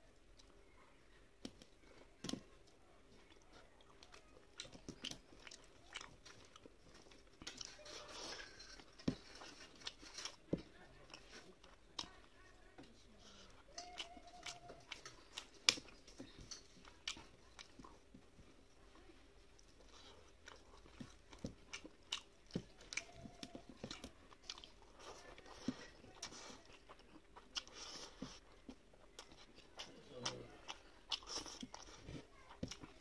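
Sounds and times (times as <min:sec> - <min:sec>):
wet chewing and crunching: 0:00.0 - 0:33.0.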